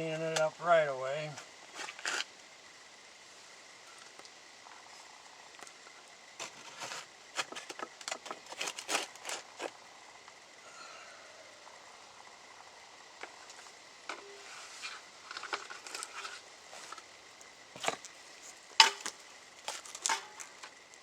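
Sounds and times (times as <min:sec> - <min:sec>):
faint background hiss: 0:00.0 - 0:21.0
hand tool scraping ash: 0:01.7 - 0:02.3, 0:06.4 - 0:09.8, 0:13.4 - 0:17.1, 0:17.7 - 0:21.0.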